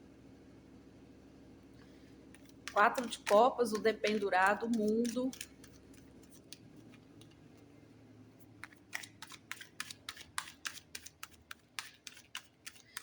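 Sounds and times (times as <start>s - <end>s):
crisp card snaps: 8.6s - 13.0s.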